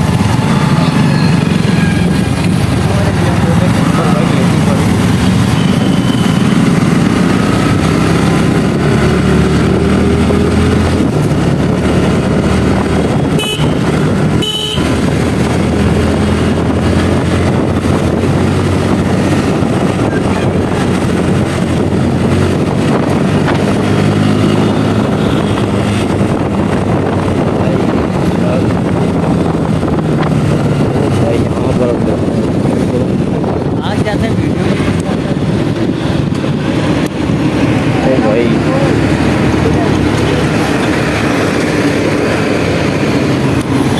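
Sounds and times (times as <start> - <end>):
motorcycle engine running: 0.0 - 43.9
wind and road noise: 0.0 - 43.9
horn beeps: 5.2 - 6.8, 13.3 - 13.8, 14.4 - 15.0.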